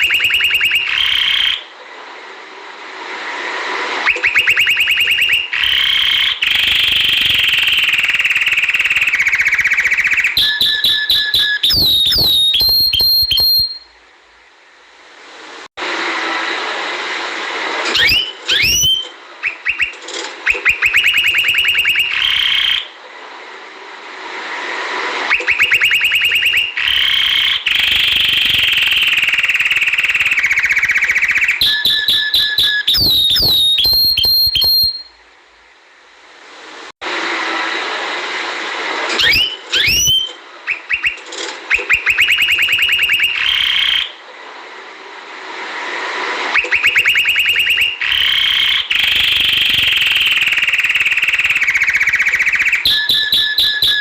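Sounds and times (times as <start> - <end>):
steady hiss: 1.6 - 10.3, 13.9 - 17.9, 22.9 - 25.4, 35.2 - 39.1, 44.2 - 46.6
canary singing: 4.0 - 13.9, 18.0 - 19.9, 25.3 - 35.1, 39.2 - 44.1, 46.5 - 54.0.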